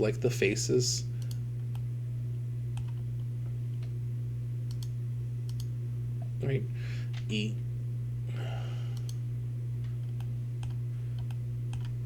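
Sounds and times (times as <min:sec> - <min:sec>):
low electrical hum: 0:00.0 - 0:12.0
keyboard and mouse clicks: 0:02.8 - 0:03.0, 0:10.1 - 0:12.0.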